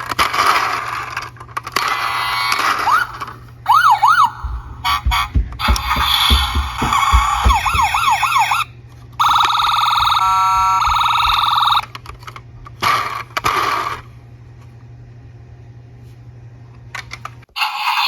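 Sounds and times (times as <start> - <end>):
low thumps: 4.3 - 8.3.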